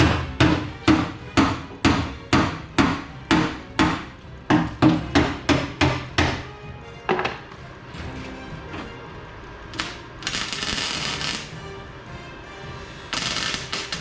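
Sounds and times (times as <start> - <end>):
hammer striking metal: 0.0 - 6.5.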